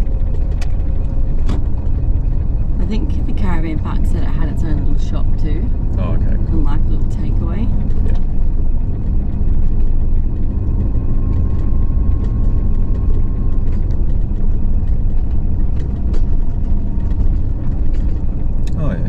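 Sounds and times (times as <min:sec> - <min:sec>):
car engine and tyres rumbling: 0:00.0 - 0:19.0.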